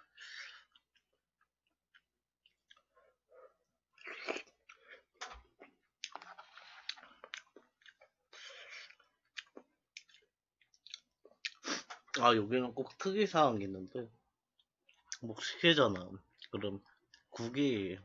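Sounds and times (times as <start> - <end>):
person chewing: 3.9 - 12.2.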